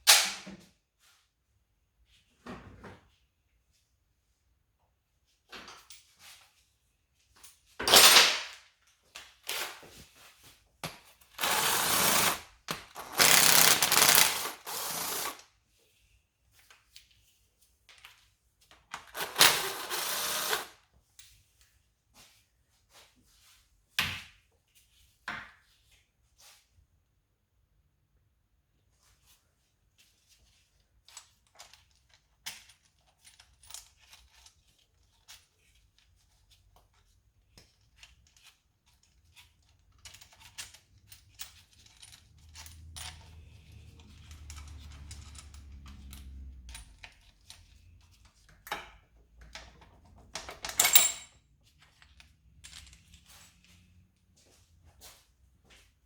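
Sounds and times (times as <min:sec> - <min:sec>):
metal parts and tools clinking: 0:11.3 - 0:15.4, 0:19.0 - 0:20.7, 0:37.8 - 0:53.9.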